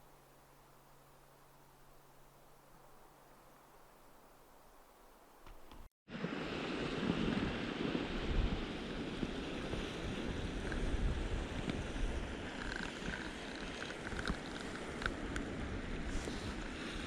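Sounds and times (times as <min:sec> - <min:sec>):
wind buffeting microphone: 0:05.8 - 0:17.0.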